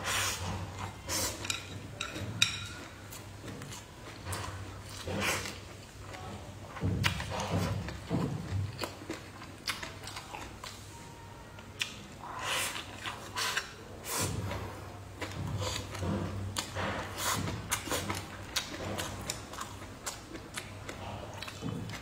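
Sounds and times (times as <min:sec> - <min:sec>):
person chewing fried fish: 0:00.4 - 0:10.9, 0:11.8 - 0:22.0.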